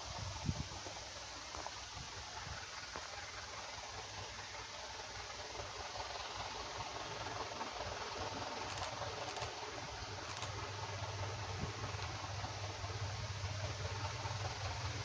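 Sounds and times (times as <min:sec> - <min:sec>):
locomotive engine humming: 0:00.0 - 0:15.0
faint clicks: 0:08.6 - 0:09.6, 0:10.2 - 0:10.6.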